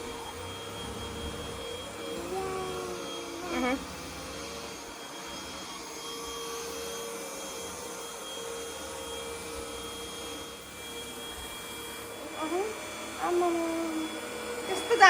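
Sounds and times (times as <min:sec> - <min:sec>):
cordless vacuum cleaner running: 0:00.0 - 0:15.0.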